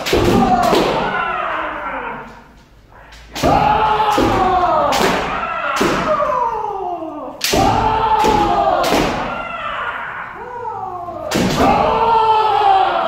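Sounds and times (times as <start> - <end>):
people shouting together: 0.0 - 13.0
bamboo sword strikes: 3.3 - 6.2, 7.4 - 9.3.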